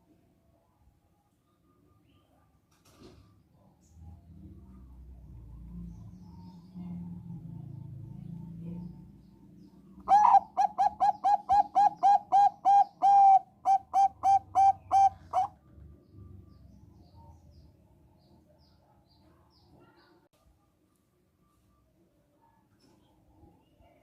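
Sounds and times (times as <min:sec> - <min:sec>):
dove cooing: 0:10.0 - 0:15.6.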